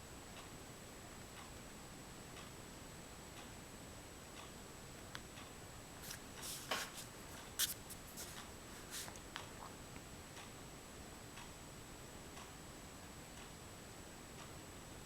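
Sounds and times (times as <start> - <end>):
oil pastel scraping on paper: 6.0 - 9.2.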